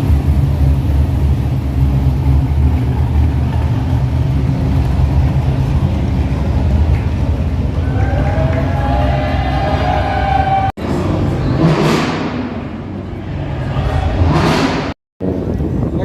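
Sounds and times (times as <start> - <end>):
car engine idling: 0.0 - 15.9.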